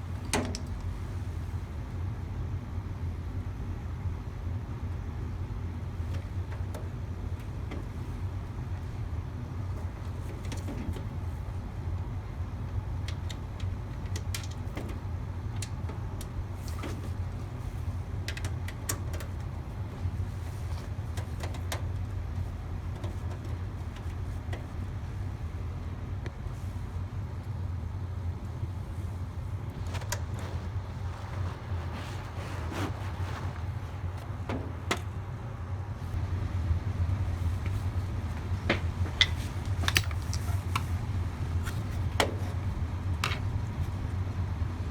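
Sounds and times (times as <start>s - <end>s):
low mechanical hum: 0.0s - 44.9s
light clicks and taps: 18.2s - 24.9s.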